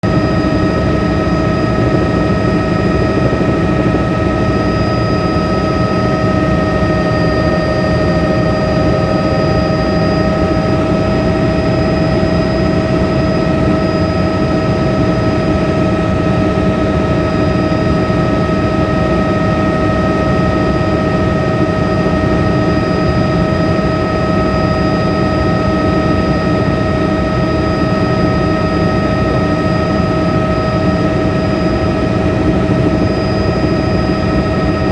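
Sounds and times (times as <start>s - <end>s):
high whine: 0.0s - 16.2s
helicopter rotor and engine: 0.0s - 34.9s.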